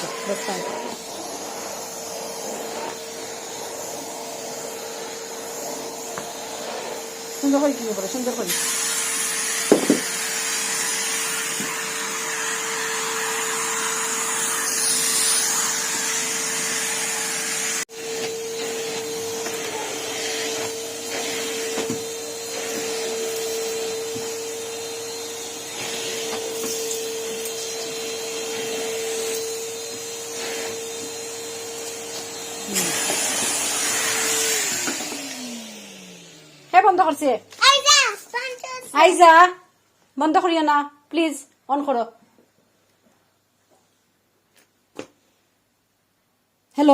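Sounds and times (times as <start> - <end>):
vacuum motor spinning down: 0.0 - 36.9
vacuum cleaner running: 0.0 - 39.5.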